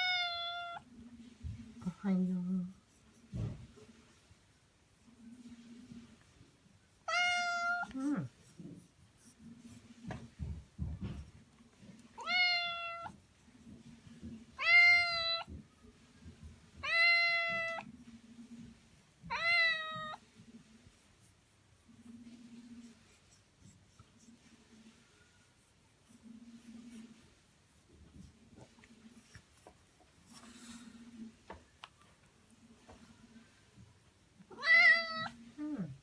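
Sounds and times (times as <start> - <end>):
cat meowing: 7.1 - 7.9, 12.2 - 13.2, 14.6 - 15.5, 16.8 - 17.9, 19.3 - 20.2, 34.5 - 35.4.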